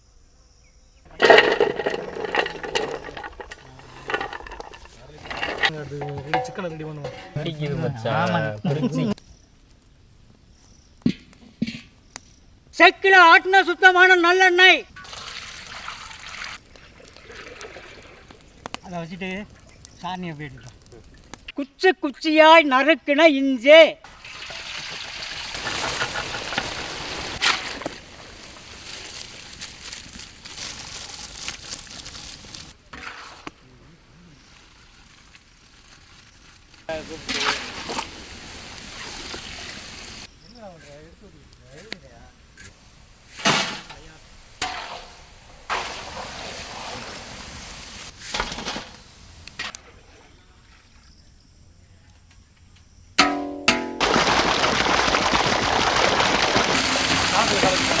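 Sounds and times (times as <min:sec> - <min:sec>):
ginger sizzling in hot oil: 0:01.2 - 0:09.4, 0:24.0 - 0:41.1, 0:41.7 - 0:49.7, 0:54.0 - 0:58.0.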